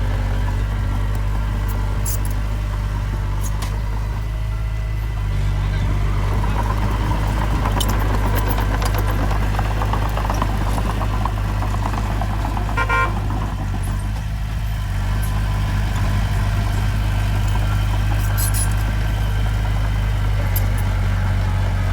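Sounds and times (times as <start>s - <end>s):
heavy diesel engine droning: 0.0s - 21.9s
short horn toot: 12.8s - 13.2s
rattling clanks: 15.1s - 21.9s.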